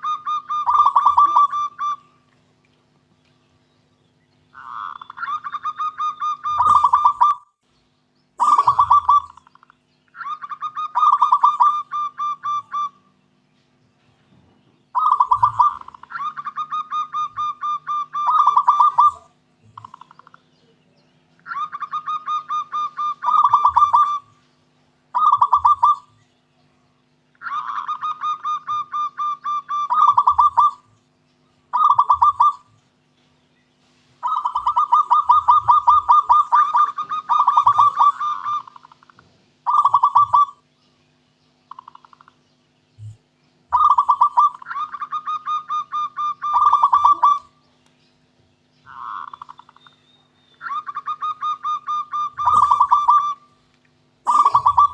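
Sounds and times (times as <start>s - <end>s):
dove cooing: 0.0s - 2.3s, 4.5s - 7.4s, 8.4s - 13.1s, 14.3s - 24.5s, 25.1s - 26.2s, 27.4s - 31.0s, 31.7s - 32.8s, 33.8s - 40.6s, 41.7s - 42.4s, 43.0s - 47.6s, 48.9s - 50.0s, 50.6s - 53.6s, 54.2s - 54.9s.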